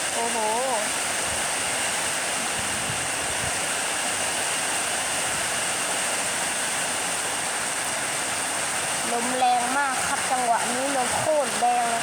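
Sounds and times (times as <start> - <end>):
heavy rain: 0.0 - 12.0
storm wind: 0.9 - 5.6
wind buffeting microphone: 1.1 - 3.8.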